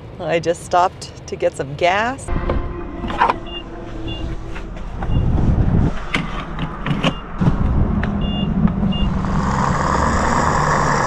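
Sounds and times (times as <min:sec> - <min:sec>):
vehicle engine hum: 0:00.0 - 0:11.0
sharp knocks and clicks: 0:06.1 - 0:08.8.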